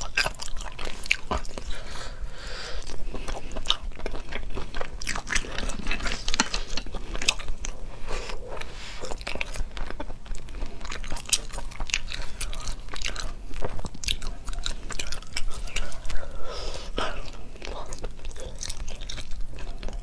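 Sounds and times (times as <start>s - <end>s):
chewing snail meat: 0.0s - 20.0s.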